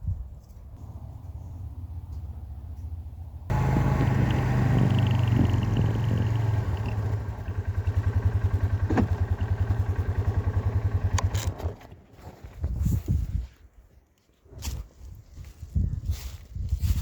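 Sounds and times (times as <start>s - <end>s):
engine idling: 3.5s - 12.0s.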